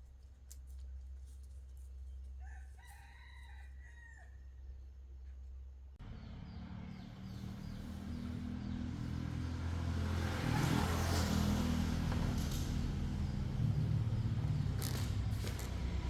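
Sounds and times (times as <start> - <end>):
vehicle engine approaching: 6.0 - 16.0.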